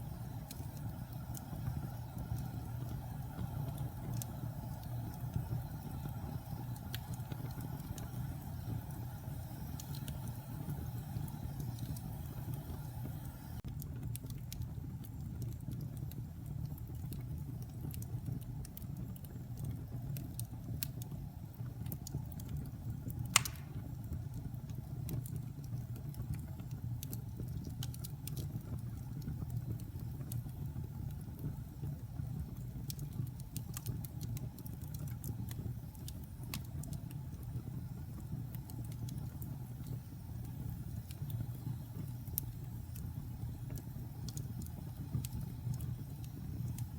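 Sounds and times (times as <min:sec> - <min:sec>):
burning wood crackling: 0:00.0 - 0:46.9
fire flames rumbling: 0:00.0 - 0:46.9
loud wood pop: 0:23.4 - 0:23.8.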